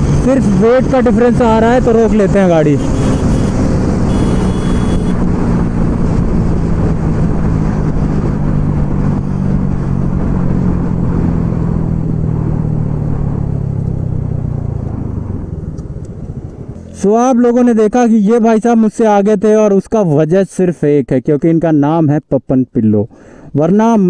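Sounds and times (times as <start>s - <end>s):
motorcycle engine running: 2.7s - 6.8s
wind rushing over microphone: 5.0s - 16.8s.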